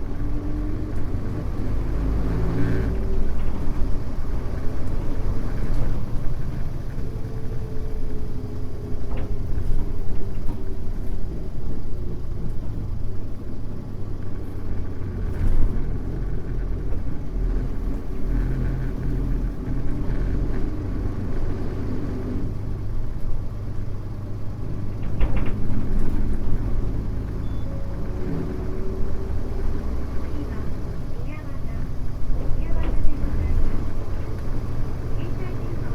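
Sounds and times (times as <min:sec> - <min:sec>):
bus engine and road rumble: 0:00.0 - 0:35.9
engine whine: 0:00.0 - 0:35.9
light rattles and clicks: 0:00.0 - 0:35.9.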